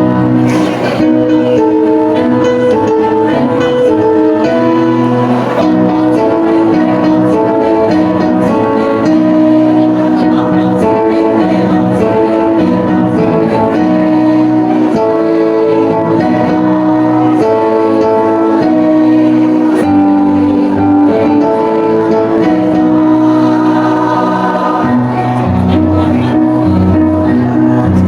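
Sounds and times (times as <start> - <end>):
choir singing with accompaniment: 0.0 - 28.0.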